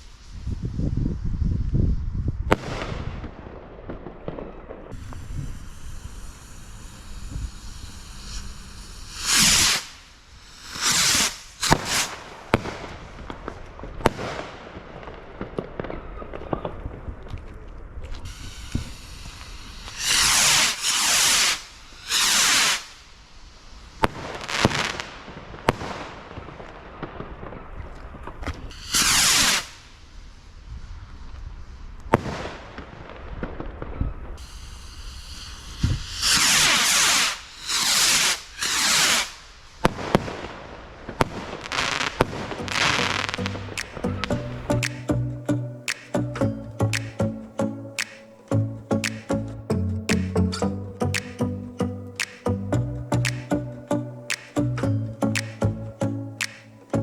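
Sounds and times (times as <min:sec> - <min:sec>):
hissing firework launches: 0:00.0 - 0:03.3, 0:04.9 - 0:15.1, 0:18.2 - 0:27.2, 0:28.3 - 0:33.4, 0:34.4 - 0:45.1
firework bangs and crackling: 0:00.0 - 0:17.3, 0:18.2 - 0:46.2, 0:46.9 - 0:47.2.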